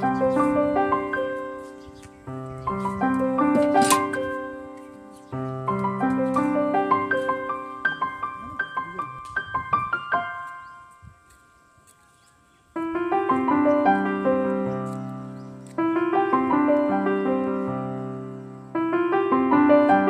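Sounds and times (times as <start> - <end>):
piano melody: 0.0 - 11.6, 12.6 - 20.0.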